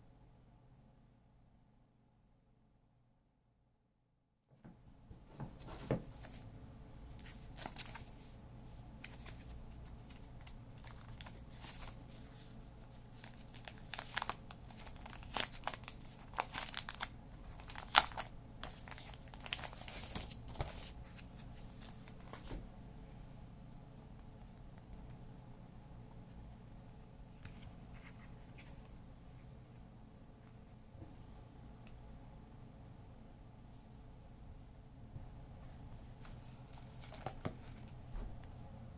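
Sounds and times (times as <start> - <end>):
wrapping crinkling and tearing: 7.2 - 8.2, 9.0 - 12.4, 13.1 - 22.4.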